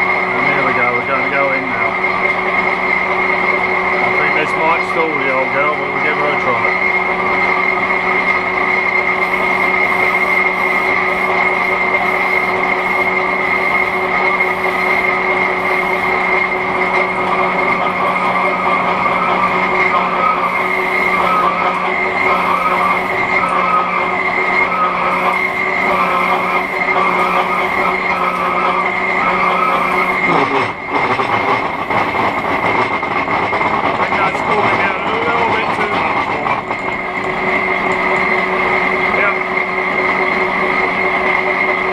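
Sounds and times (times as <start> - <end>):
metal lathe humming and whining: 0.0 - 41.9
metal cutting noise: 8.0 - 36.7.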